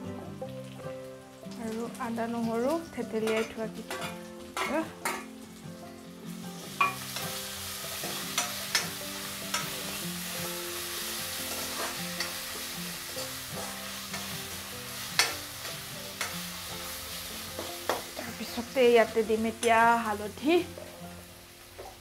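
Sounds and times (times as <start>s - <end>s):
vegetables sizzling in hot oil: 0.0s - 22.0s
metal ladle scraping a pan: 3.2s - 5.3s, 6.8s - 10.0s, 10.9s - 16.5s.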